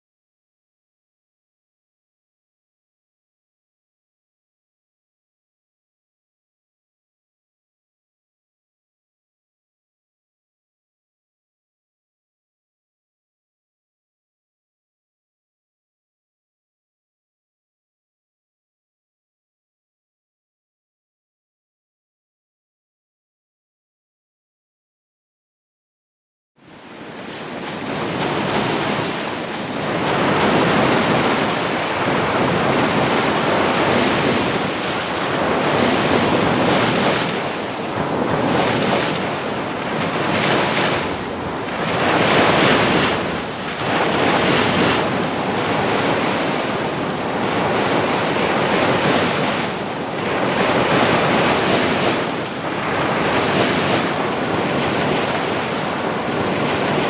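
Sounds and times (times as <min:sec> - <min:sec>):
ocean waves breaking: 0:26.6 - 0:57.0.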